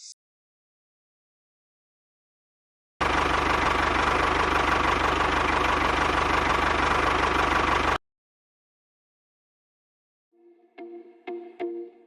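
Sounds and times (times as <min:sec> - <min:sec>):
small engine running: 0:03.0 - 0:08.0.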